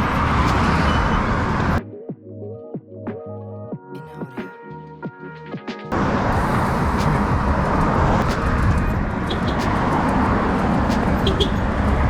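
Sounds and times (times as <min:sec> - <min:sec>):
highway traffic road noise: 0:00.0 - 0:01.8, 0:05.9 - 0:12.0.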